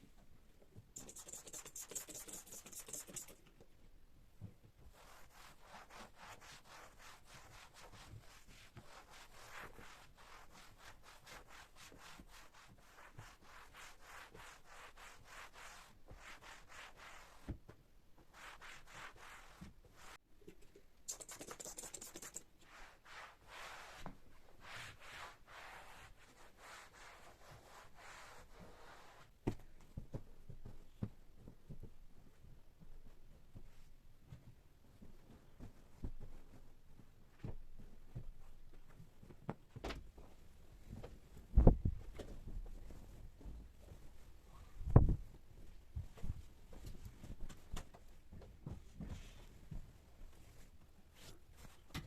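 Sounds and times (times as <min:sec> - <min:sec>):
cloth rubbing a surface: 0:01.0 - 0:03.4, 0:04.8 - 0:17.6, 0:18.2 - 0:20.2, 0:21.1 - 0:29.4, 0:42.4 - 0:47.8, 0:48.8 - 0:51.9.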